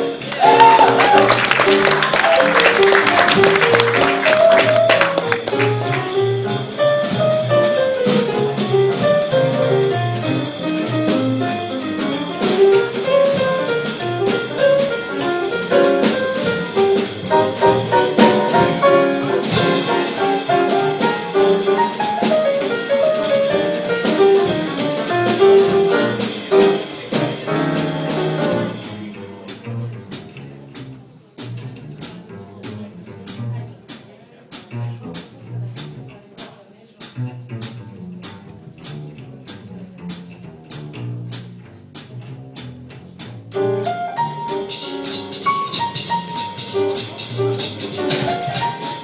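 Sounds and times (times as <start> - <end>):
jazz melodic solo line: 0.0 - 29.0, 43.5 - 49.0
bass: 0.0 - 49.0
drum kit with cymbals: 0.0 - 49.0.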